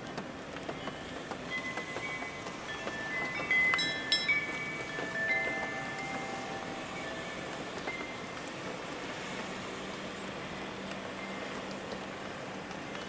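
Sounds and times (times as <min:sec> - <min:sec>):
steady rain falling: 0:00.0 - 0:13.0
faint ringing tones: 0:00.8 - 0:08.3.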